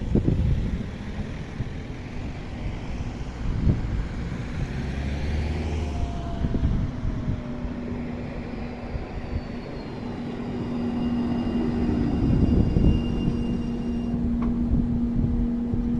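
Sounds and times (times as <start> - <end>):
tram drive humming: 0.0 - 15.9
wheels rumbling on rails: 0.0 - 15.9
faint high tones: 7.8 - 14.2.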